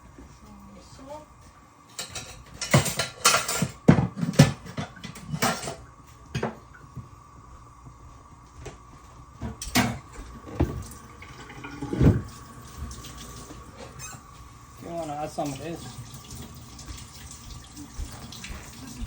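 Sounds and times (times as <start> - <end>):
utensils clattering against a pot: 1.8 - 6.6, 9.5 - 17.1.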